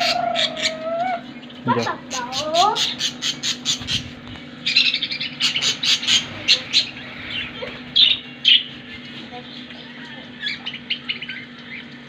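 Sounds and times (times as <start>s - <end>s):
budgerigars chirping: 0.0s - 9.0s.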